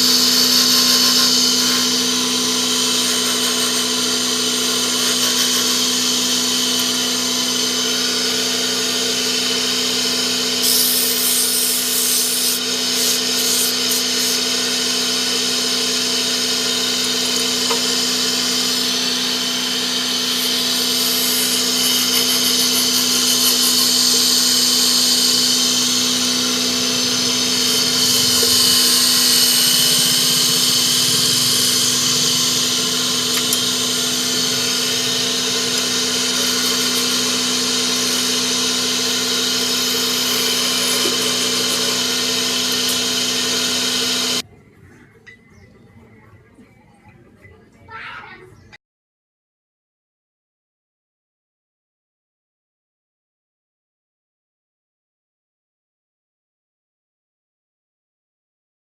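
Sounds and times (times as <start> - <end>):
chisel cutting wood on a lathe: 0.0 - 44.4
lathe motor humming: 0.0 - 44.4.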